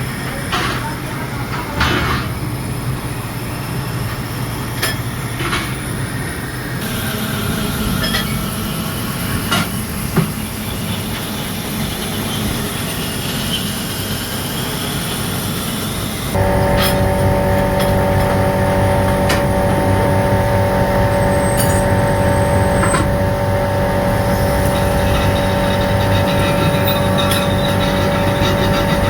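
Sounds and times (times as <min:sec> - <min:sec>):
workshop machinery running: 0:16.1 - 0:29.0.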